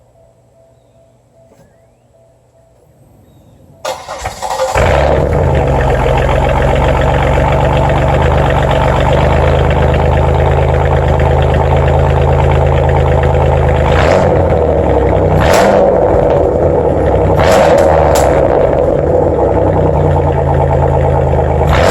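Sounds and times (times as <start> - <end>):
car engine idling loudly: 3.9 - 21.9.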